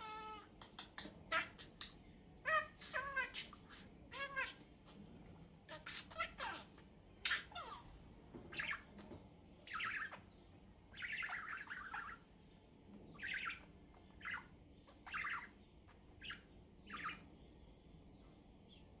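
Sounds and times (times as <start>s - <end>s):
budgerigar chirping: 0.0s - 4.6s, 5.7s - 7.9s, 8.5s - 9.0s, 9.6s - 12.3s, 13.1s - 17.3s.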